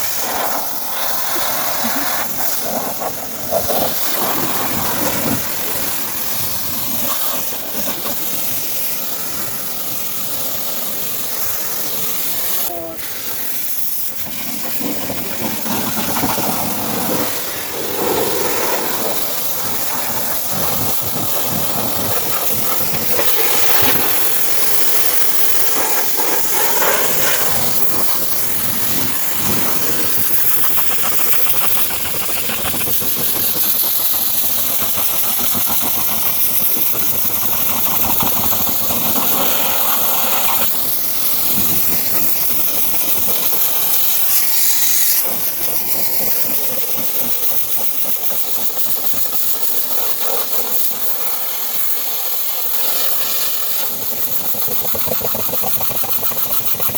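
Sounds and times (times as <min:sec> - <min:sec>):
cleaning jet spraying: 0:00.0 - 0:56.9
motor running: 0:15.0 - 0:45.8.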